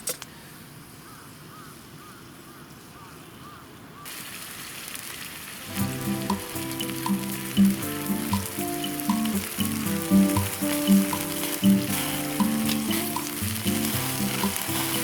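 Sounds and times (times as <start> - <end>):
meat sizzling over fire: 4.1 - 15.0
background music: 5.7 - 15.0.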